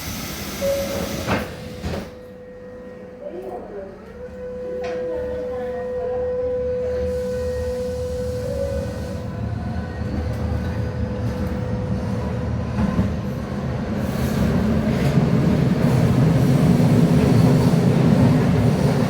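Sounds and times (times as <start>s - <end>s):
train wheels rumbling on rails: 7.1s - 19.0s.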